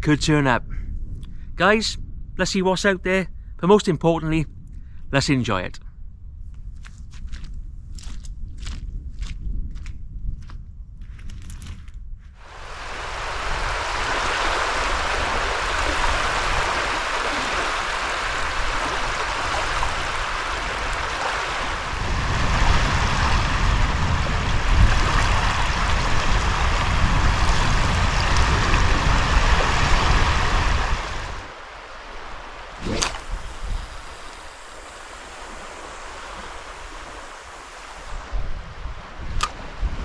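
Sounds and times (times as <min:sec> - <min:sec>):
wind rumble on microphone: 0:00.0 - 0:40.0
wind and water rushing: 0:12.4 - 0:40.0.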